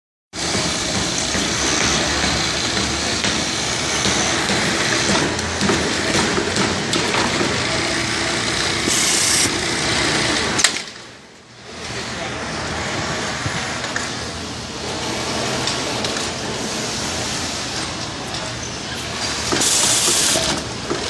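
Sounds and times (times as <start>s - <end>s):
industrial sewing machine running: 0.4s - 10.7s, 19.1s - 21.0s.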